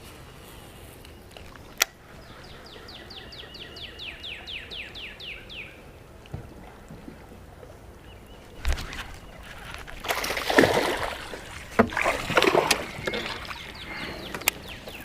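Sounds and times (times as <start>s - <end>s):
faint outdoor hiss: 0.0s - 15.0s
songbird whistling: 2.2s - 5.8s.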